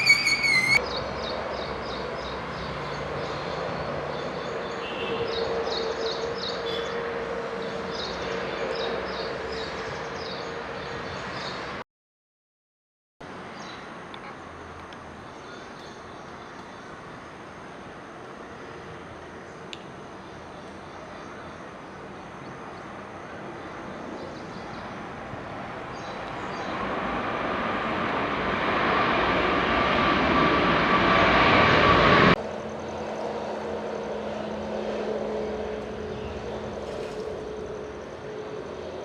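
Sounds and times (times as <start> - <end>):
jet engine hum: 0.0 - 11.0, 23.5 - 39.0
airliner jet engines landing: 0.0 - 11.8, 22.8 - 39.0.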